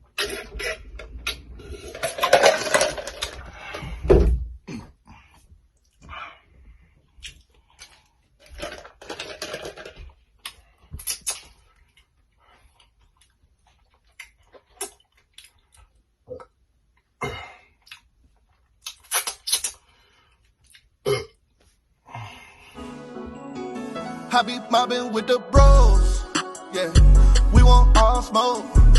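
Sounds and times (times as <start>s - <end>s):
crunching and chewing: 7.1s - 21.0s
mouth clicks: 18.8s - 19.9s.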